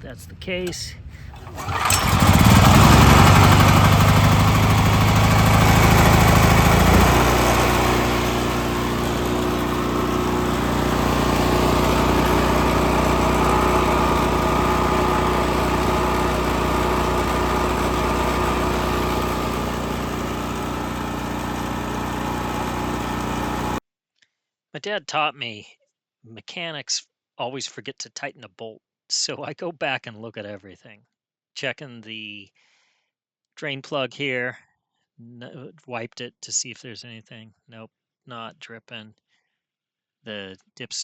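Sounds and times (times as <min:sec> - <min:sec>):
generator engine running: 0:00.6 - 0:23.8.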